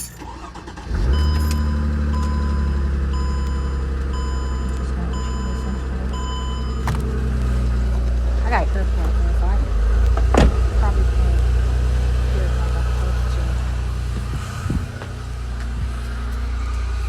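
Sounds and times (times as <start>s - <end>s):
car engine starting and idling: 0.0s - 17.0s
car warning chime beeping: 0.1s - 7.8s.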